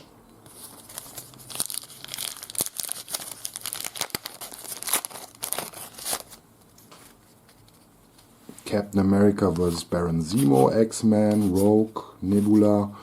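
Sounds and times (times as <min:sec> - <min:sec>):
wrapper tearing and crinkling: 0:00.8 - 0:06.4.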